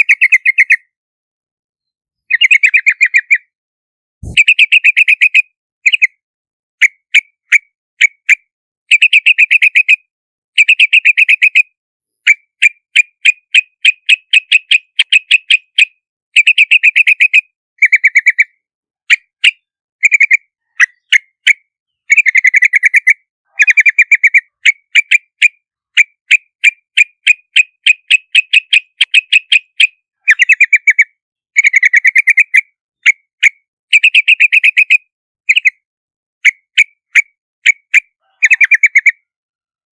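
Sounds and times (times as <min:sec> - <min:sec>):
bird chattering call: 0:04.2 - 0:06.0, 0:38.2 - 0:39.2.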